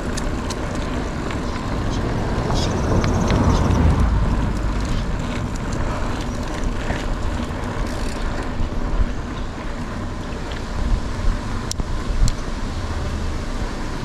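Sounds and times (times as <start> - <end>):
small clicks and rattles: 0.0 - 8.8
bike tyre noise: 0.0 - 14.0
wind buffeting microphone: 0.0 - 14.0.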